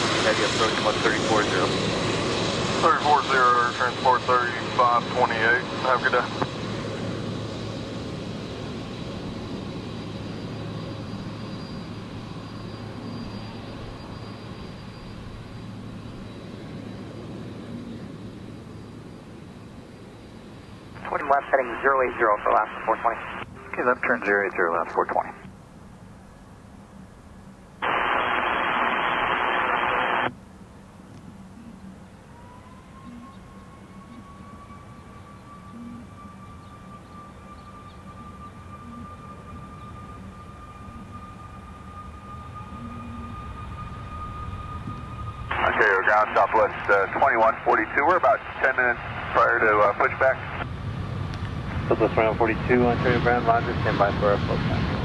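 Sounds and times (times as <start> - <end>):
jet engines rushing: 0.0 - 25.5, 27.8 - 30.4, 32.2 - 55.0
faint high whine: 0.0 - 55.0
radio static hiss: 2.8 - 6.3, 21.0 - 25.5, 27.8 - 30.3, 45.5 - 50.7, 51.9 - 54.8.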